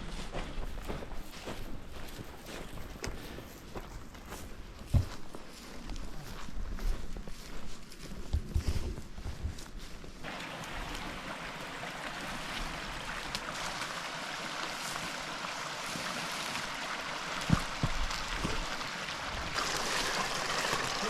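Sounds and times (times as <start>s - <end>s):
river water rushing: 10.2s - 20.9s.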